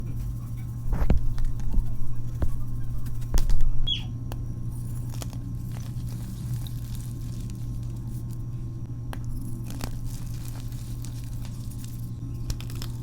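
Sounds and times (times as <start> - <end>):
chalk crunching and cracking: 0.0 - 3.9, 4.7 - 8.6, 9.2 - 13.0
steady low hum: 0.0 - 13.0
high falling chirp: 3.8 - 4.2.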